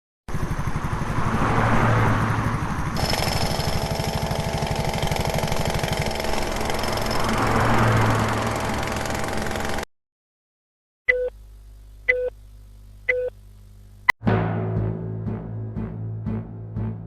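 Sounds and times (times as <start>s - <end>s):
machinery engine drone: 0.3s - 9.8s, 14.2s - 17.0s
high steady machine whine: 2.4s - 9.8s
rapid regular knocking: 3.0s - 7.3s.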